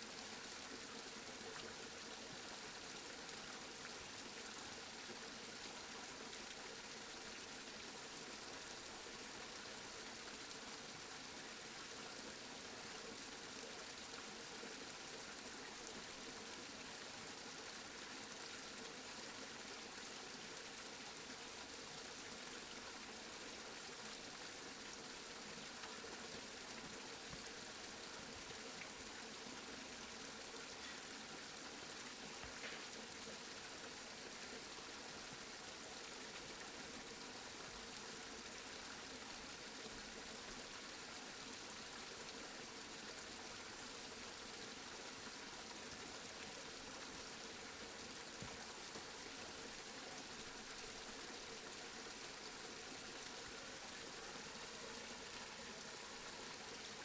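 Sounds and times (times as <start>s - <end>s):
faint hiss of rain: 0.0s - 57.0s
soft raindrop ticks: 32.4s - 33.0s.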